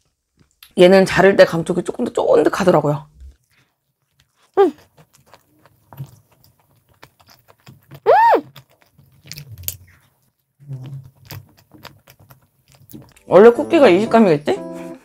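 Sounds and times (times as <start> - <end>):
chewing soft food: 0.0 - 0.8, 2.6 - 13.3.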